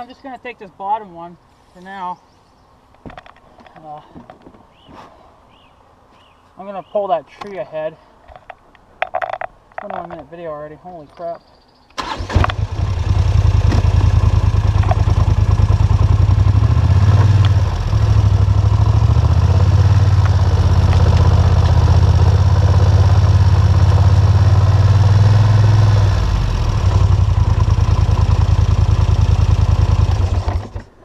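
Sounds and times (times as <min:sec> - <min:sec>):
atv engine running: 0:12.3 - 0:31.0.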